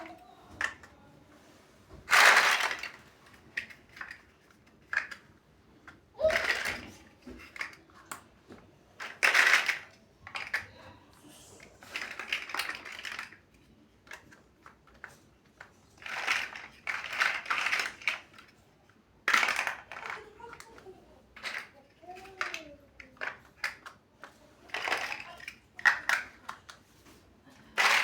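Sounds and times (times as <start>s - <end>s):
plastic bricks clicking and rattling: 2.1s - 8.2s, 9.0s - 10.7s, 11.9s - 18.6s, 19.2s - 26.8s, 27.7s - 28.0s.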